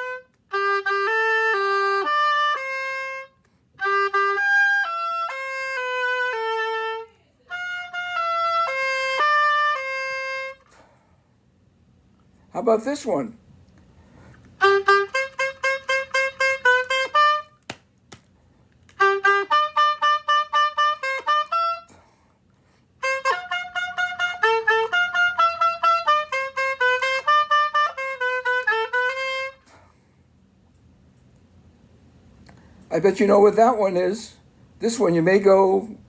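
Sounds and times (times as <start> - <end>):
oboe playing a tune: 0.0 - 10.9, 14.2 - 17.6, 18.9 - 22.2, 23.0 - 29.9.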